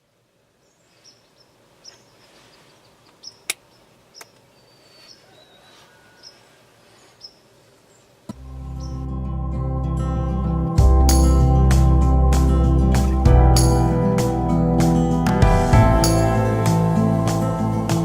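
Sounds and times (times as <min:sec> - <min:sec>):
high bird chirps: 0:00.7 - 0:07.5, 0:08.6 - 0:09.1.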